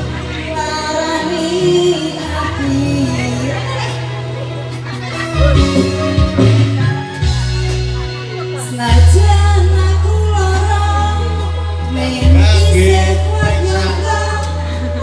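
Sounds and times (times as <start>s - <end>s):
live band playing: 0.0s - 15.0s
person singing: 8.7s - 15.0s.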